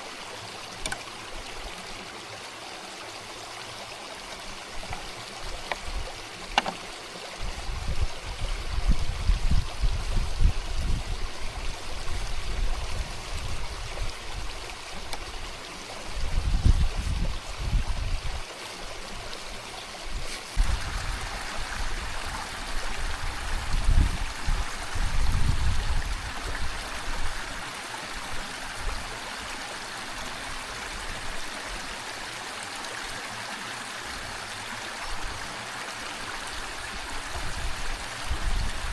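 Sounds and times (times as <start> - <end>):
stream rushing: 0.0 - 38.9
wind buffeting microphone: 7.4 - 18.4, 20.0 - 27.5, 37.1 - 38.9.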